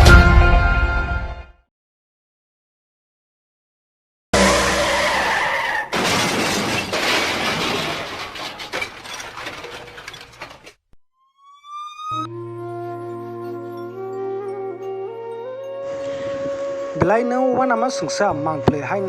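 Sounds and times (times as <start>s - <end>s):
music with held notes: 11.2s - 19.0s.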